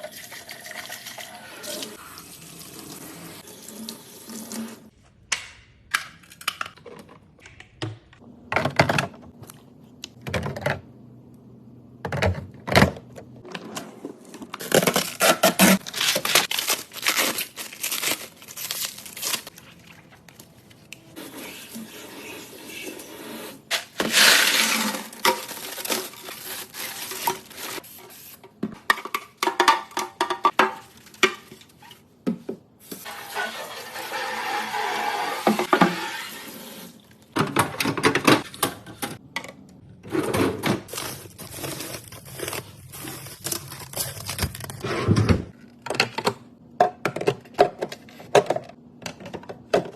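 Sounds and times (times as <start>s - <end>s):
plastic wrap tearing and crinkling: 14.6s - 20.8s, 23.7s - 27.8s, 40.9s - 44.8s.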